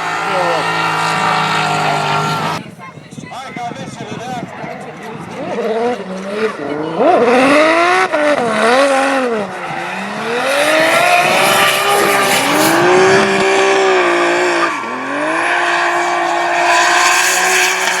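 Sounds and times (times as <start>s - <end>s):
car engine revving hard: 0.0s - 2.6s, 5.3s - 18.0s.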